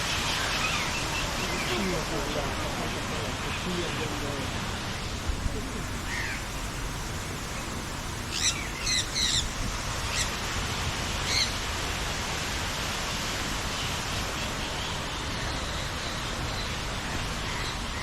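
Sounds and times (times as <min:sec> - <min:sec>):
birds calling: 0:00.0 - 0:10.5, 0:11.1 - 0:11.6
rushing hiss: 0:00.0 - 0:18.0.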